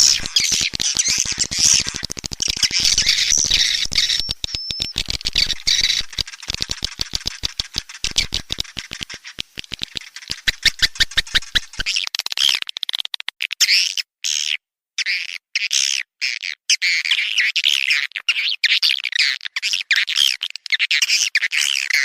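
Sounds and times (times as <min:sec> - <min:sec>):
thin whistle: 0:00.0 - 0:06.2
swiftlets twittering: 0:00.0 - 0:12.0
fast clicks: 0:00.0 - 0:13.4.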